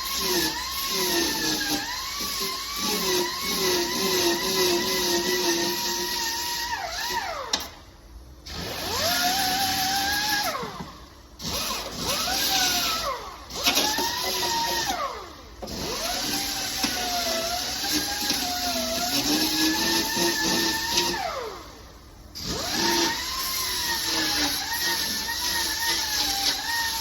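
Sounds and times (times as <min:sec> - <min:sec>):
power grinder grinding steel: 0:00.0 - 0:07.6, 0:08.5 - 0:21.5, 0:22.4 - 0:27.0.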